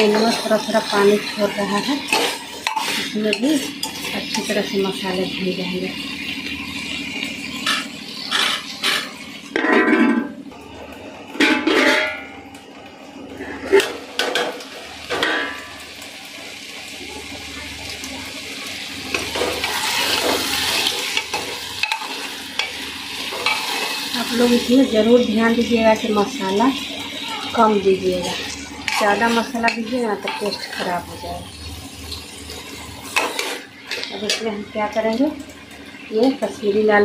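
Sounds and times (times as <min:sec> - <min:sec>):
metal spatula scraping a pot: 0:00.0 - 0:04.6, 0:07.6 - 0:10.1, 0:19.4 - 0:24.8, 0:28.0 - 0:34.5
vegetables sizzling in a pot: 0:00.0 - 0:37.0.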